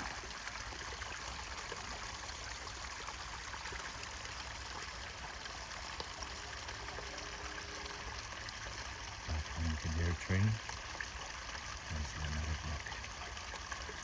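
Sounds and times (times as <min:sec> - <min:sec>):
brook babbling: 0:00.0 - 0:14.0
distant train horn: 0:06.7 - 0:08.4.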